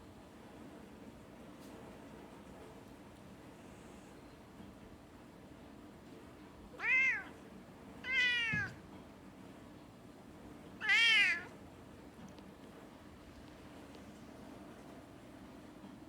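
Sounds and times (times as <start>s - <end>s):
cat meowing: 6.8s - 7.4s, 8.0s - 8.8s, 10.8s - 11.6s.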